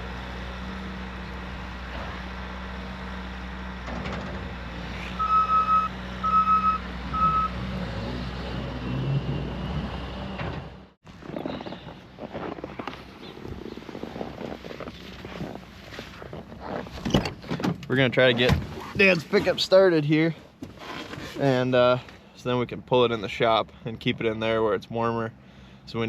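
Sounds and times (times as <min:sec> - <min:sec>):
vehicle engine running: 0:00.0 - 0:15.7
reverse warning beeps: 0:05.2 - 0:07.6.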